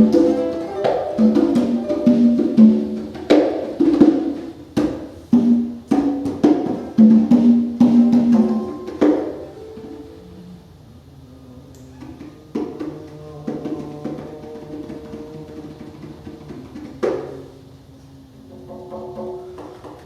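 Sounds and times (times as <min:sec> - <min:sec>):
plucked strings: 0:00.0 - 0:03.6
congas: 0:00.0 - 0:20.0.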